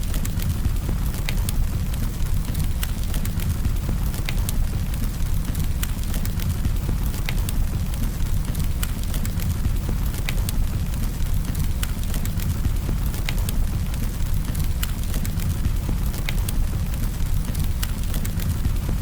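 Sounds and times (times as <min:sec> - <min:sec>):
low rumble of flames: 0:00.0 - 0:19.0
wood crackling and popping: 0:00.0 - 0:19.0.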